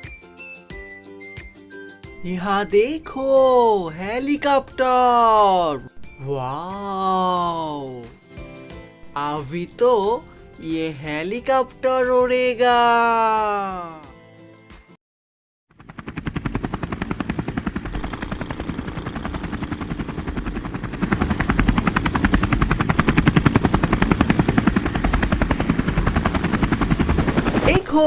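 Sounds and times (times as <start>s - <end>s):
helicopter rotor chopping: 2.2s - 5.6s, 15.7s - 28.0s.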